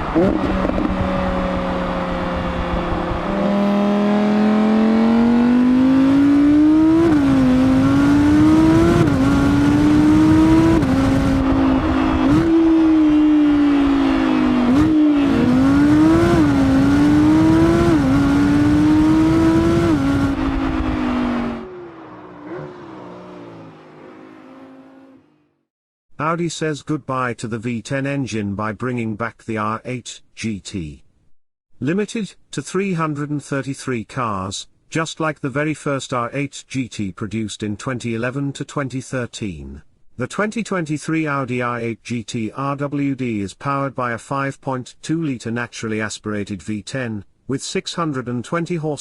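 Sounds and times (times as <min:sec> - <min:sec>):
sports car engine revving through gears: 0:00.0 - 0:25.5.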